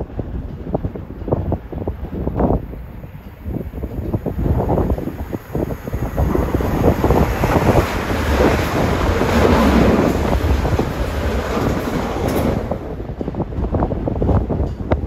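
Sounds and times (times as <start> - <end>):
train rumbling past: 0.0 - 15.0
wind buffeting microphone: 0.0 - 15.0.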